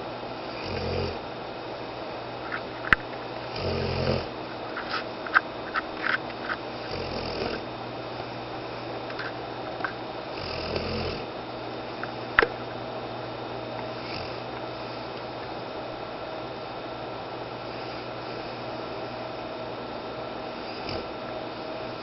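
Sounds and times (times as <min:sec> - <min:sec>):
dog snoring: 0:00.4 - 0:01.2, 0:03.5 - 0:04.3, 0:06.8 - 0:07.6, 0:10.3 - 0:11.3, 0:13.9 - 0:15.1, 0:17.7 - 0:18.7, 0:20.5 - 0:22.0.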